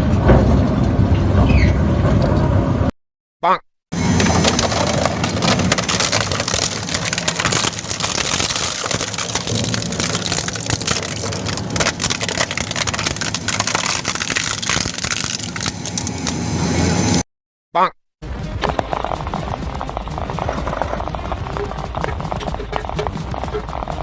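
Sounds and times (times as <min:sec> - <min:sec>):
machine crushing material: 0:04.0 - 0:16.4, 0:18.6 - 0:24.0.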